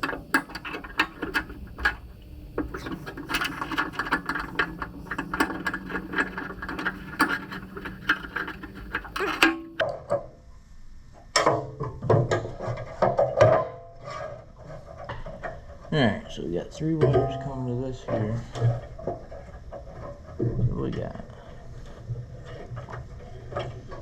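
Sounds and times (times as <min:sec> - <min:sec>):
metal parts clinking and rattling: 0:00.0 - 0:09.8.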